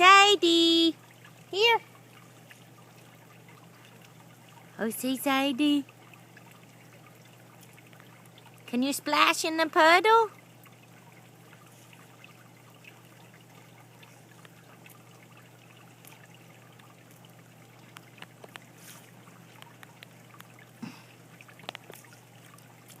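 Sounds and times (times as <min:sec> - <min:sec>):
light rain dripping: 0:00.0 - 0:23.0.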